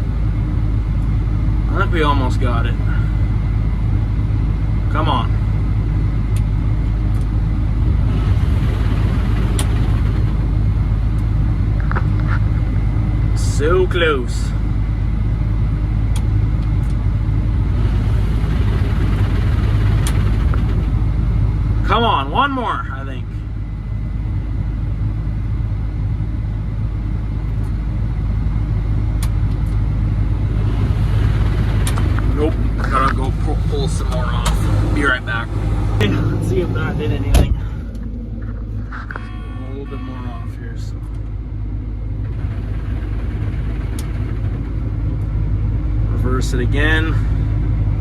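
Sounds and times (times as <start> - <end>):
combine engine humming: 0.0 - 48.0.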